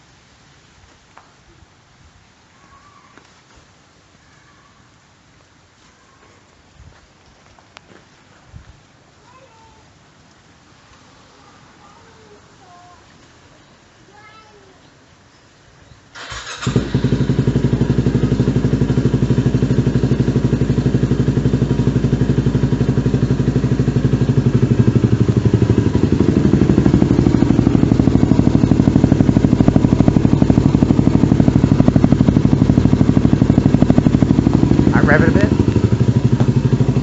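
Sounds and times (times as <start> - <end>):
motorcycle engine idling: 16.2 - 37.0.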